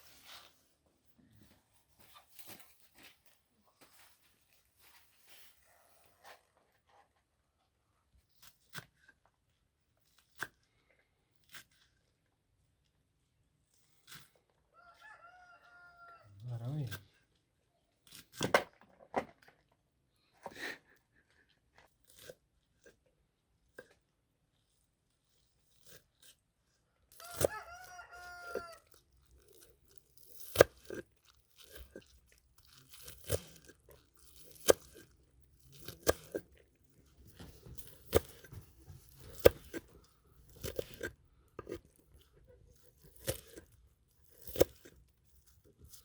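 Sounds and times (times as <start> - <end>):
sharp crunching knocks: 37.0 - 41.8.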